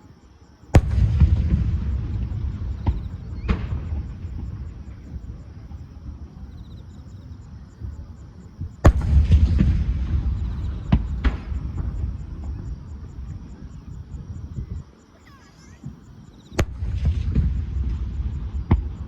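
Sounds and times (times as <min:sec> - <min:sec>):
low rumble: 0:00.8 - 0:08.1, 0:08.8 - 0:14.8.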